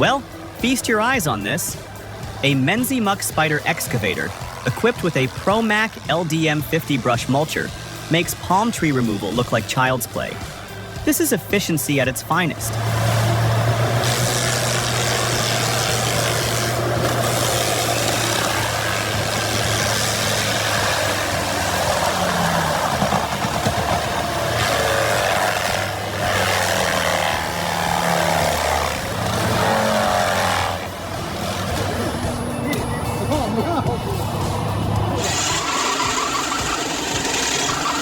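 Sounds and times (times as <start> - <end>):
excavator engine drone: 0.0 - 38.0
mulcher grinding and shredding: 0.0 - 38.0.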